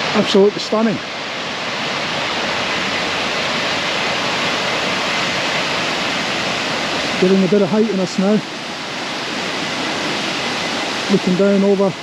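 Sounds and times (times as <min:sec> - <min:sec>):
water rushing down creek: 0:00.0 - 0:12.0.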